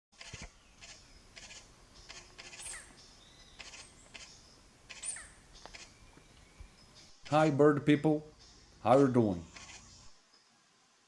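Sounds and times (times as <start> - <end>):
birds calling: 0.4 - 10.2.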